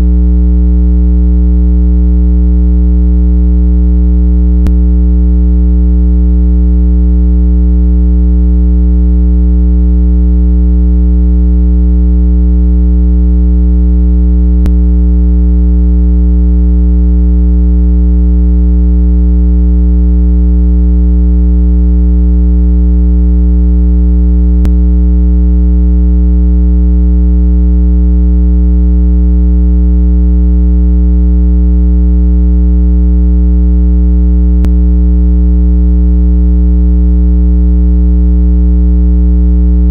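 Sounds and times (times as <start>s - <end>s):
low buzzy electronic tone: 0.0s - 19.3s, 22.0s - 26.4s, 34.5s - 35.2s.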